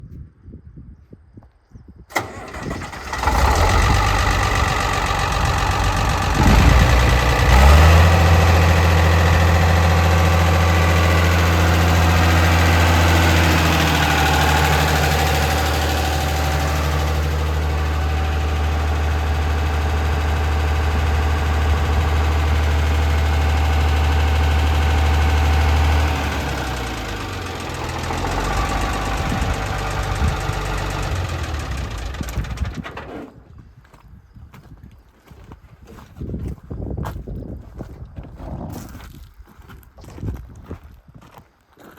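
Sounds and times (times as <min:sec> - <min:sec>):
tractor diesel engine starting and idling: 0:02.1 - 0:33.3.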